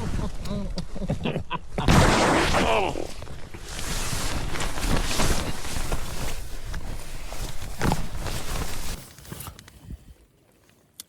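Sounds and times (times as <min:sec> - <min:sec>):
fabric rustling: 0:02.1 - 0:09.5.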